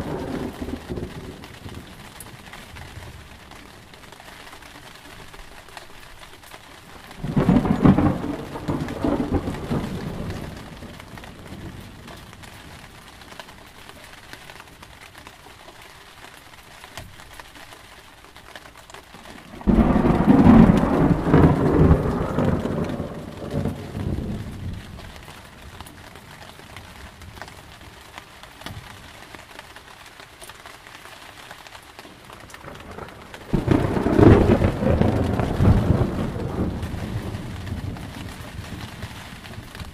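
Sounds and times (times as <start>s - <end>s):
thunder rumbling: 0.0s - 3.9s, 7.2s - 13.1s, 19.4s - 27.9s, 32.2s - 39.9s
steady rain: 0.0s - 39.9s.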